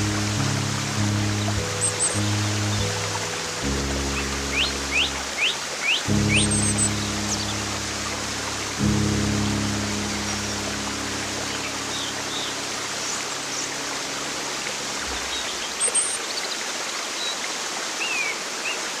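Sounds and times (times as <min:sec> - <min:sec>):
low held music chord: 0:00.0 - 0:15.9
stream water rushing: 0:00.0 - 0:19.0
bird chirps: 0:01.4 - 0:03.0, 0:04.2 - 0:07.6.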